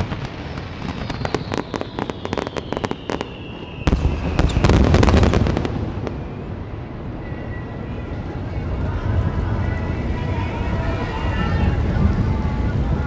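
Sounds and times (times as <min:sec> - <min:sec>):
fireworks crackling pops: 0:00.0 - 0:06.7
firework shell boom: 0:03.9 - 0:06.6.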